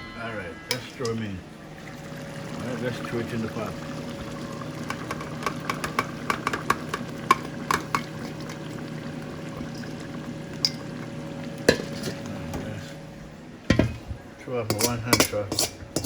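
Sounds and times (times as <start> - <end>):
steady hum: 0.0 - 15.3
clicks and clinks in pot: 10.6 - 10.9, 14.7 - 16.0.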